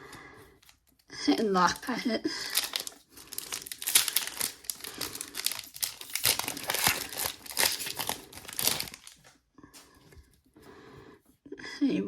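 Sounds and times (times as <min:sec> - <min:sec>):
foil pack tearing and crinkling: 0:01.7 - 0:09.3.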